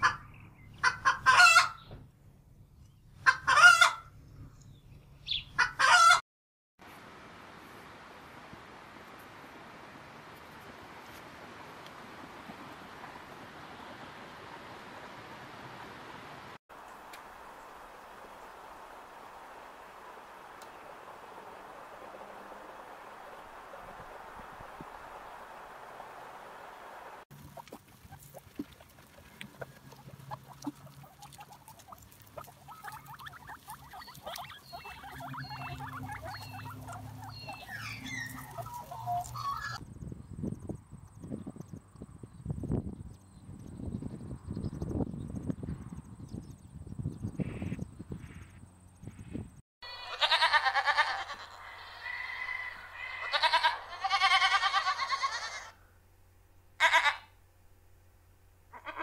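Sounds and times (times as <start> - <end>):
guinea pigs squeaking: 27.3 - 39.8
goats bleating: 49.8 - 52.0, 53.0 - 55.8, 56.8 - 57.3.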